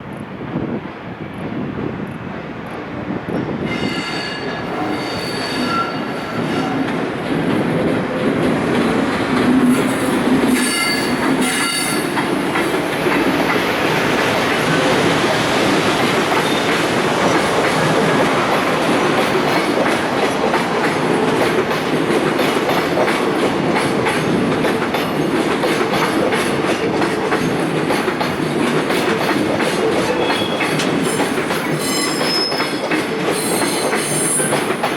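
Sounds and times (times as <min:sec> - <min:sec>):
rail rumble: 0:00.0 - 0:32.9
train wheel squeals: 0:03.4 - 0:06.8, 0:09.6 - 0:12.3, 0:16.4 - 0:17.0, 0:30.0 - 0:34.9.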